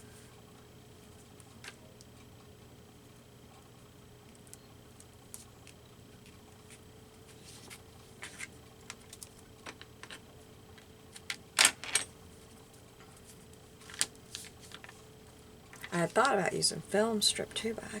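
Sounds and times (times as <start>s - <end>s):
paper rustling: 13.2s - 15.0s.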